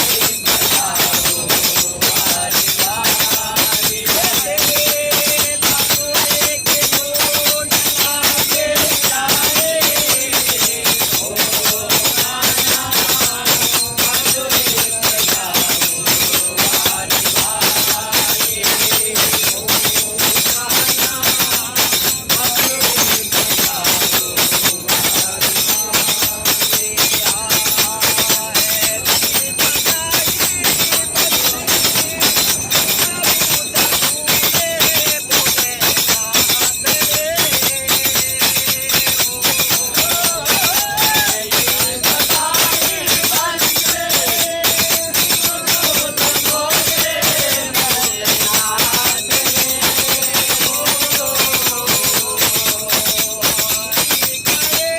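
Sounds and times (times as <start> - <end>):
people singing together: 0.0 - 54.9
tambourine and jingling percussion: 0.0 - 54.9.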